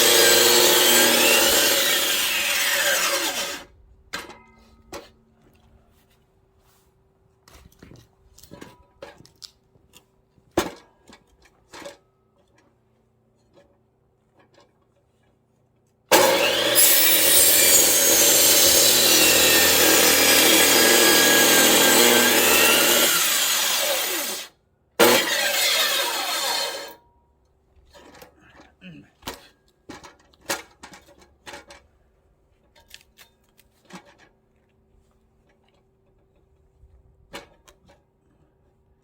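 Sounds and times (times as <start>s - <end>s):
electric saw cutting logs: 0.0s - 3.7s, 16.1s - 27.0s.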